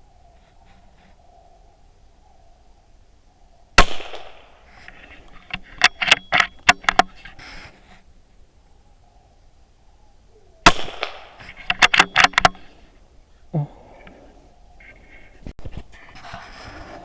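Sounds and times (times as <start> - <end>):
gunshot with echo: 3.8 - 4.5, 10.6 - 11.4
sharp clicks: 10.8 - 12.7.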